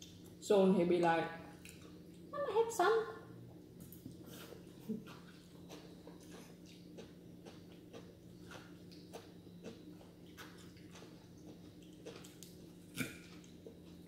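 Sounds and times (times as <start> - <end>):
person chewing food: 3.7 - 14.0.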